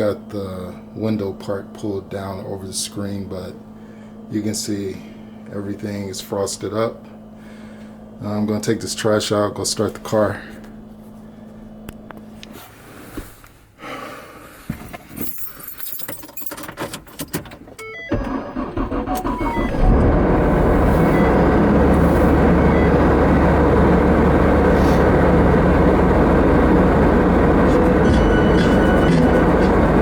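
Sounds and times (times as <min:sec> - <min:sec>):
keys jangling: 0:15.1 - 0:17.4
car engine starting and running: 0:17.4 - 0:30.0.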